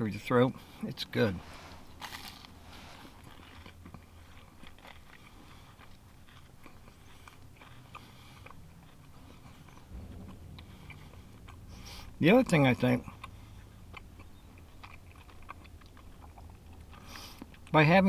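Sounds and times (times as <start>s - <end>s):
faint crunching chewing: 0.4s - 18.0s
bite into crunchy sandwich: 2.0s - 11.1s.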